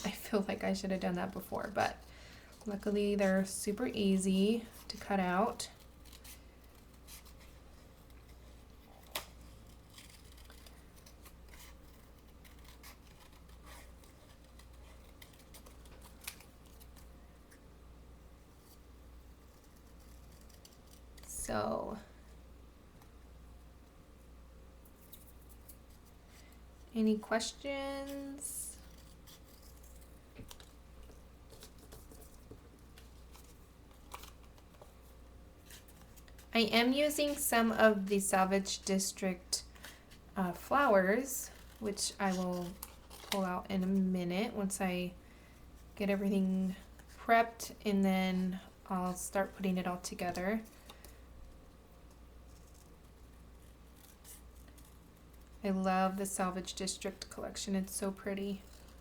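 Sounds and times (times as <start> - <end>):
scissors snipping paper: 8.9 - 17.1.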